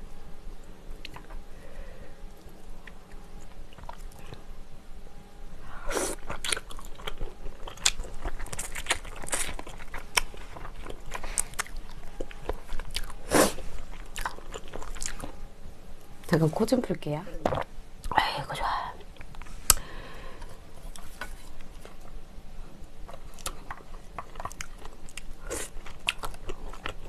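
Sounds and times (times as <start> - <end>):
person biting and chewing: 6.0 - 15.4.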